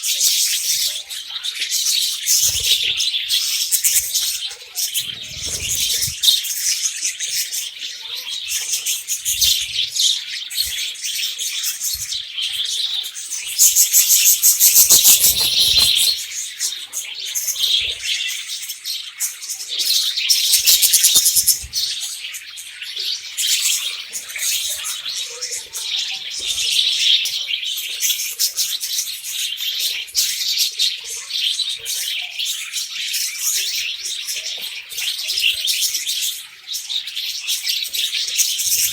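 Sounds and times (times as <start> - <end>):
budgerigars chirping and chattering: 0.0 - 38.9.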